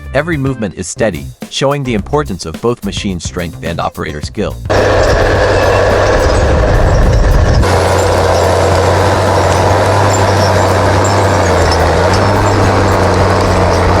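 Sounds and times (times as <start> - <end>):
heavy diesel engine running: 4.7 - 14.0.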